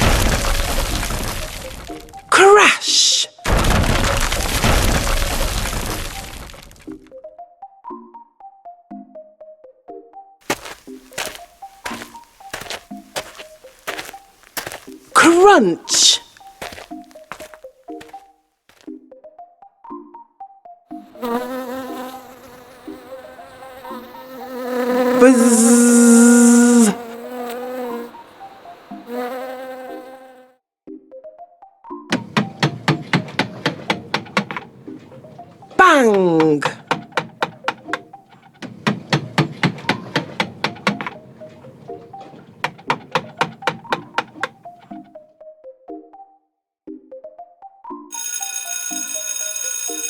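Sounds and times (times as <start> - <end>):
flying insect buzzing: 21.0 - 30.5
short tones: 25.2 - 27.0
rapid sharp knocks: 32.1 - 35.9, 36.6 - 44.9.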